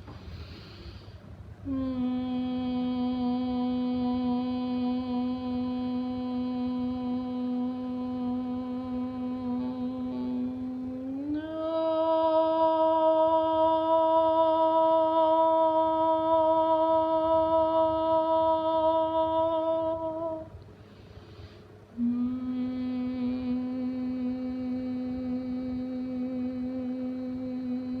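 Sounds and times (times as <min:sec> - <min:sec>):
person breathing in: 0:00.2 - 0:01.3, 0:20.8 - 0:21.8
person humming long tones: 0:01.6 - 0:20.6, 0:22.0 - 0:28.0.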